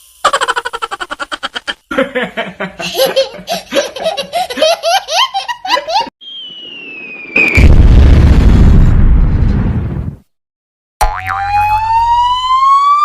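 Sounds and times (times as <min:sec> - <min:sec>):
baby giggling and laughing: 0:00.3 - 0:01.9, 0:02.8 - 0:06.1
whistle falling in pitch: 0:06.2 - 0:07.7
loud explosion boom: 0:06.2 - 0:10.2.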